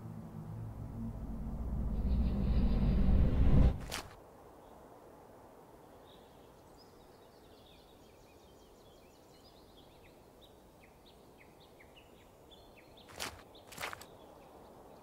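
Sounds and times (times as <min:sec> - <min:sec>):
low steady hiss: 0:04.2 - 0:15.0
small birds chirping: 0:05.8 - 0:15.0.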